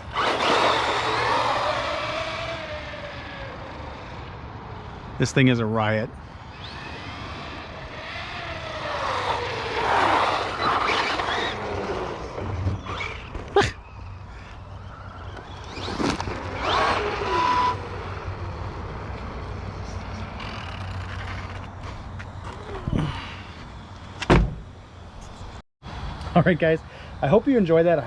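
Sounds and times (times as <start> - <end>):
tyres scrubbing over ground: 0.0 - 2.0, 8.6 - 13.8
rc truck motor whine: 0.0 - 5.2, 6.2 - 24.0.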